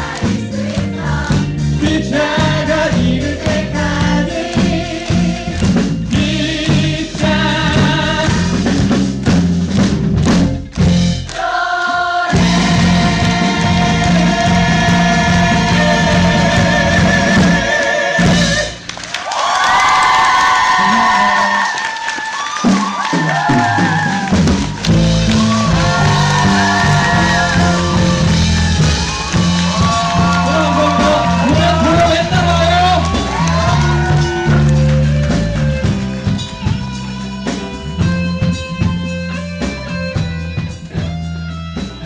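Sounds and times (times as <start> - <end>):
voices singing: 0.0 - 8.6, 11.3 - 18.8
bass and guitar accompaniment: 0.0 - 19.2, 22.6 - 42.0.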